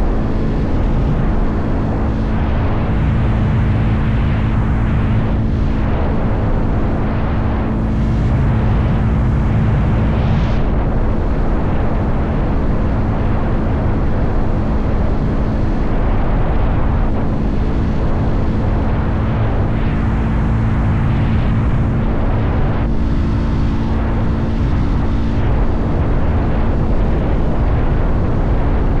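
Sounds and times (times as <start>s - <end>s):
motorcycle engine running: 0.0s - 13.9s
wind noise: 0.0s - 29.0s.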